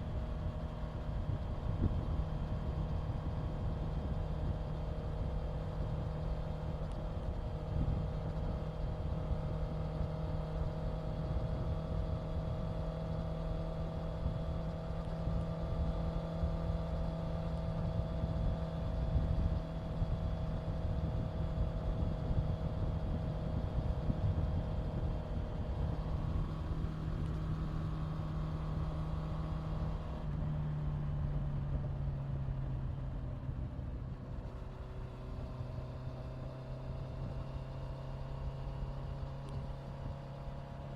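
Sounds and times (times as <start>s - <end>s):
motorcycle engine cruising: 0.0s - 40.9s
wind rushing on microphone: 17.7s - 27.0s.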